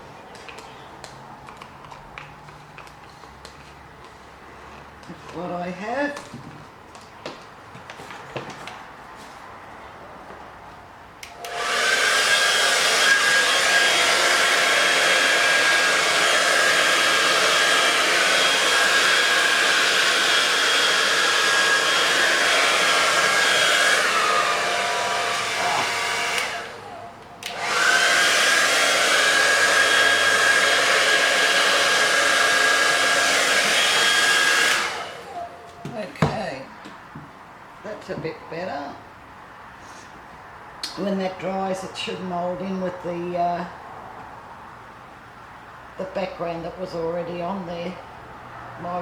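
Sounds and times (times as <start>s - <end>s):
hair dryer blowing with whine: 11.2s - 36.7s.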